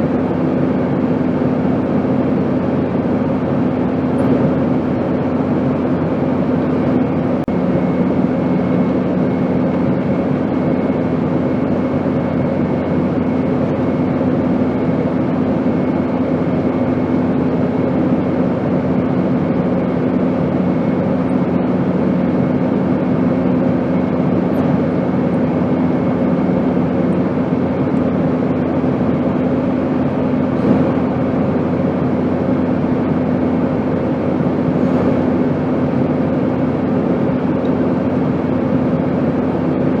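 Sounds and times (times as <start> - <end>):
airplane drone: 0.0 - 40.0.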